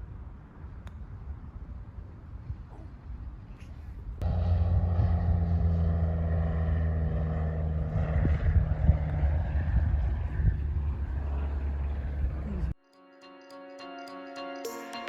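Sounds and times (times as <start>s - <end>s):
engine droning: 4.2s - 12.8s.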